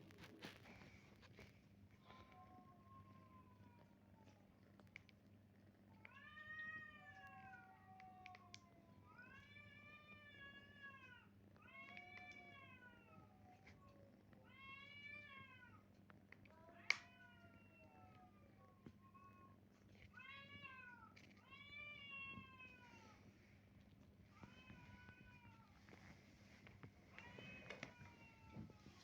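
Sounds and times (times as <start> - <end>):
cats meowing: 5.9 - 23.4, 24.3 - 29.0.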